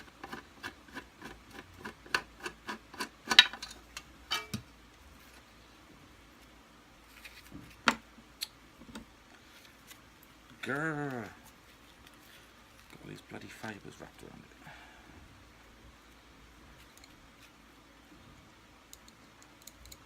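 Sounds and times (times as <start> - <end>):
rapid clicking of small parts: 18.9 - 20.0.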